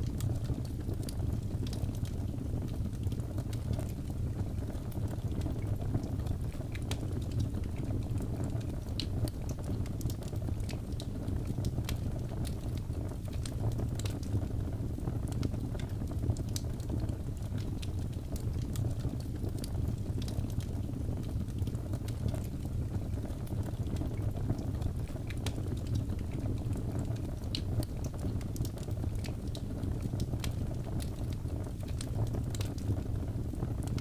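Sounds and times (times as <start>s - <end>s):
low rumble of flames: 0.0s - 34.0s
burning wood crackling: 14.9s - 34.0s.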